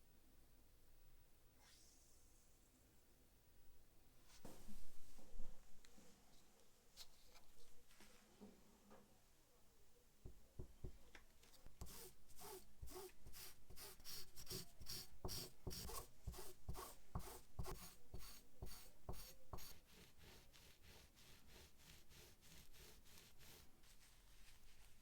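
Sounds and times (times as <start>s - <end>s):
rubbing strokes by hand: 11.8s - 25.0s.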